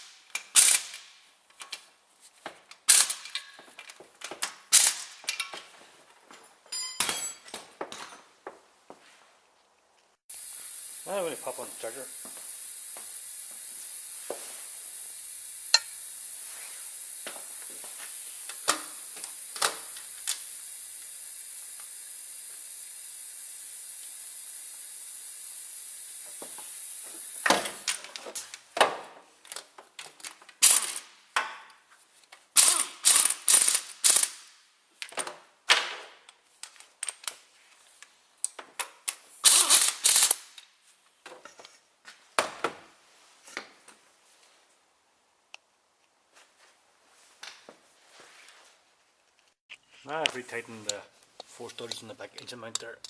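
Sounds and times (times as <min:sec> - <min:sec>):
steady high hiss: 0:10.2 - 0:28.6, 0:49.5 - 0:53.0
ratchet wrench clicking: 0:15.1 - 0:16.2, 0:32.6 - 0:34.4, 0:39.4 - 0:40.5.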